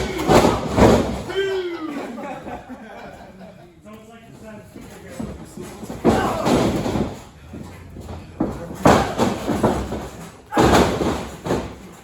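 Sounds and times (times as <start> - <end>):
bodies slamming onto wrestling ring: 0.0 - 1.4, 5.7 - 12.0
ring rattling: 4.8 - 12.0.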